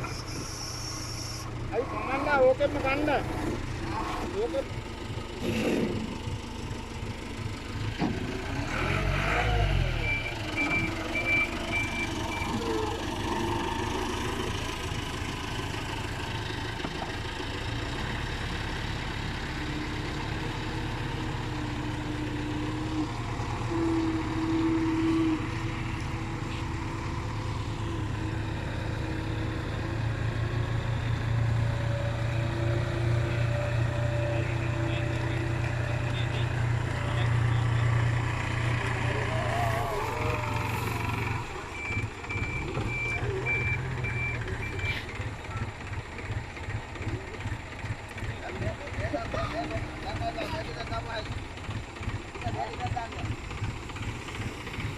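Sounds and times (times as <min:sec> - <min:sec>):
diesel machinery engine drone: 0:00.0 - 0:54.9.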